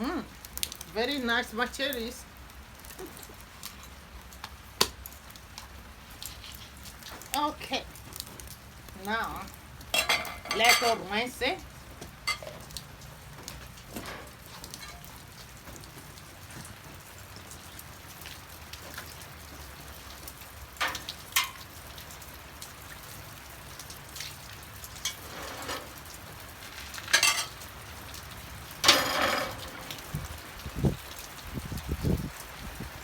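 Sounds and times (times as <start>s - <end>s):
light rain hissing: 0.0s - 33.0s
meat knocking and splashing in pot: 4.4s - 5.2s.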